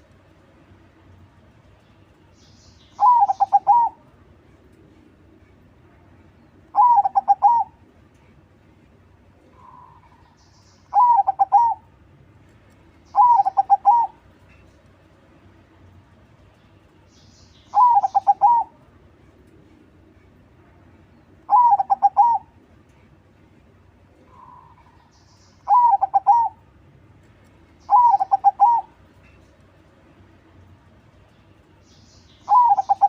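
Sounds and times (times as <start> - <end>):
dove cooing song: 2.9 - 4.1, 6.7 - 7.8, 9.5 - 11.9, 13.1 - 14.2, 17.7 - 18.8, 21.4 - 22.6, 24.2 - 26.6, 27.8 - 29.3, 32.5 - 33.0.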